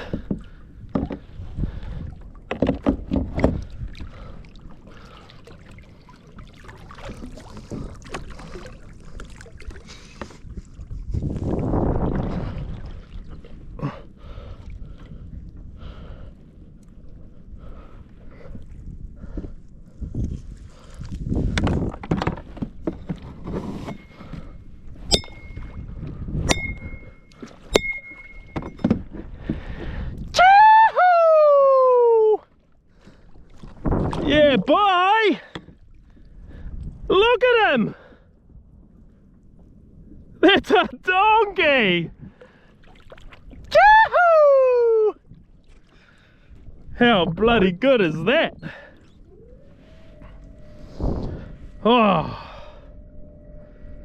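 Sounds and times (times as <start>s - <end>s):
water splashing: 0.0s - 13.7s
knocks and bumps on kayak: 0.1s - 1.4s, 2.4s - 3.8s, 21.5s - 24.0s, 27.8s - 29.7s
rush of water: 2.5s - 10.6s
sharp metallic clinks: 25.1s - 25.7s, 26.5s - 27.1s, 27.7s - 28.9s.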